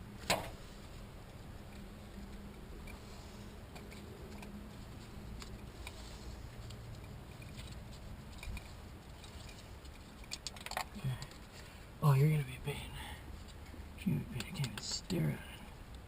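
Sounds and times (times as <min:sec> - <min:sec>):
low hum: 0:00.0 - 0:16.0
small parts clicking and rattling: 0:03.7 - 0:11.8.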